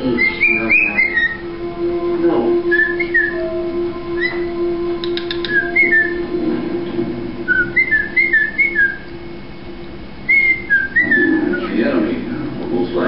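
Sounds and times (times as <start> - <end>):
cockatiel whistling: 0.0 - 6.4, 7.4 - 9.4, 10.2 - 12.1
quick clicks: 5.0 - 5.6.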